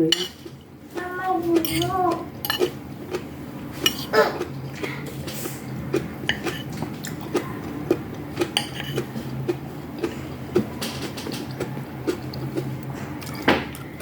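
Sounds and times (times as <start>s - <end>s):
cutlery clicking against dishes: 0.1s - 0.6s, 1.6s - 2.8s, 8.5s - 9.1s.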